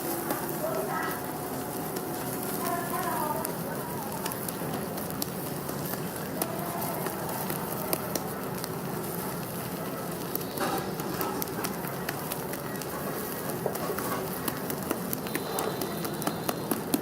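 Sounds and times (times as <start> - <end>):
crackles and clicks: 0.0 - 17.0
food stir-frying in a wok: 0.0 - 17.0.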